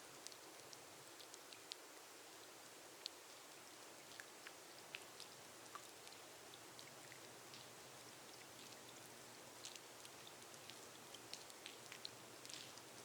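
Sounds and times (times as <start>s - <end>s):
rain hissing on glass roof: 0.0s - 13.0s.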